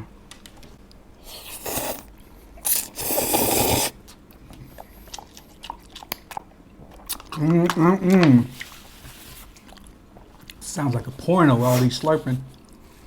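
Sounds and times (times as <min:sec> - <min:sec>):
noodles being slurped: 0:01.3 - 0:04.0
wet chewing clicks: 0:01.3 - 0:08.8.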